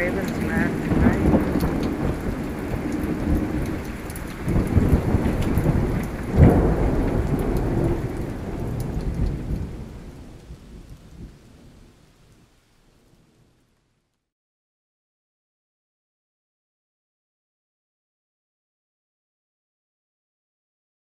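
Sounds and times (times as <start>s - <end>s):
thunder rumbling: 0.0s - 13.6s
rain: 0.0s - 14.3s.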